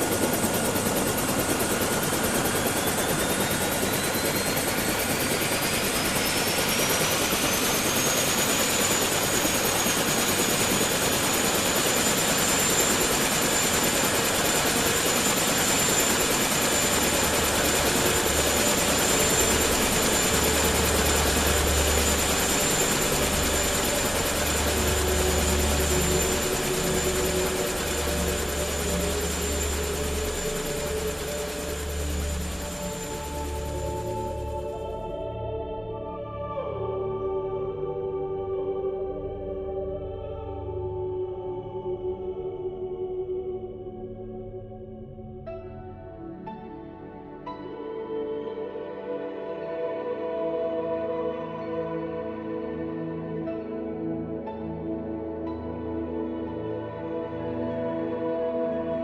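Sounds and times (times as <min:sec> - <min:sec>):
drone propellers whining: 0:00.0 - 0:35.0.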